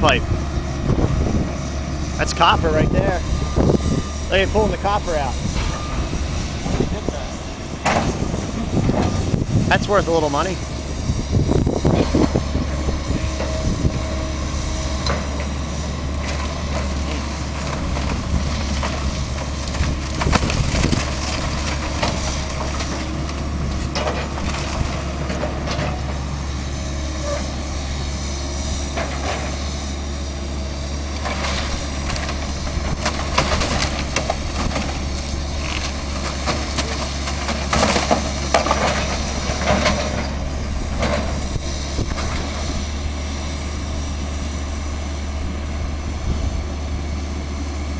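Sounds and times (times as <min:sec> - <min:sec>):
demolition machine engine: 0:00.0 - 0:47.9
metal squeals: 0:27.1 - 0:27.6.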